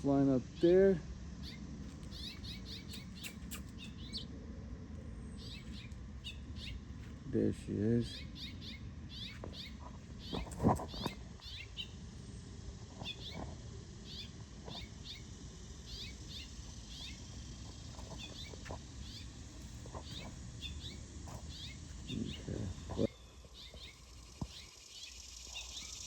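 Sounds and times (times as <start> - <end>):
bird chirping: 1.4 - 4.4, 5.0 - 7.2, 7.9 - 26.0.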